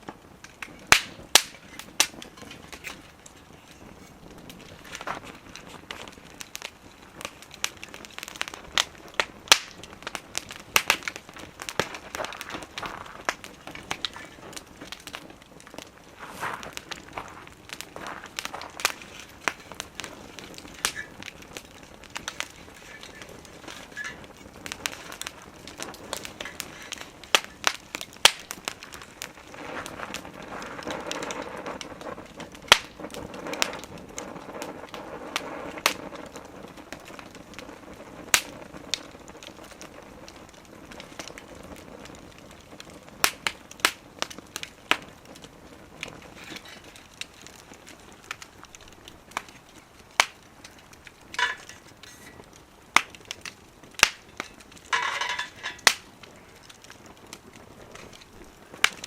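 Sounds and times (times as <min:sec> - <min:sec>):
flames rushing: 0:00.0 - 0:59.0
wood fire crackling and popping: 0:00.0 - 0:59.0.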